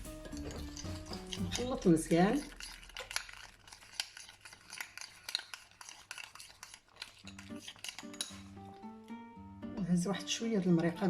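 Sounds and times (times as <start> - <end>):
guitar music: 0.0 - 1.7, 7.3 - 11.0
utensil stirring in a bowl: 0.0 - 8.8, 10.4 - 11.0.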